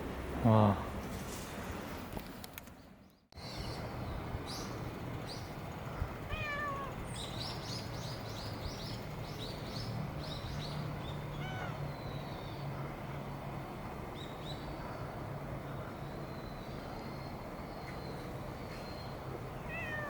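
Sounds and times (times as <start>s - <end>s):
small birds chirping: 2.6s - 20.0s
cat meowing: 6.3s - 7.0s, 11.3s - 11.8s, 19.6s - 20.0s.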